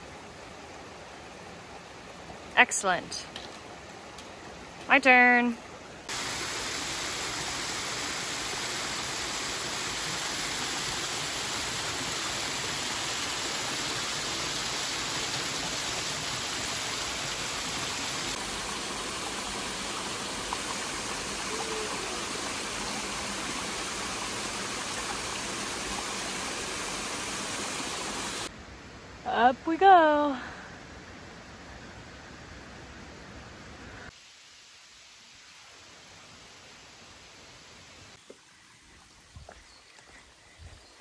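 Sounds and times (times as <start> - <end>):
stream rushing: 0.0 - 29.0.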